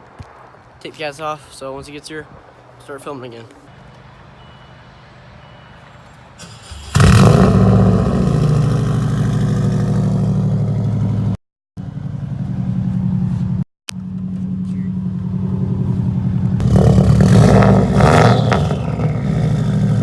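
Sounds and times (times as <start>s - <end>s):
car engine idling loudly: 6.9s - 20.0s.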